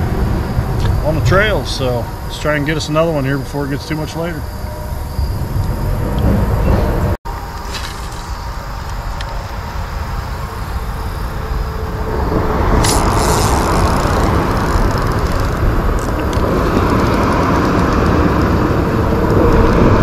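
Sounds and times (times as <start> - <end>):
river rumbling and rushing: 5.4 - 20.0.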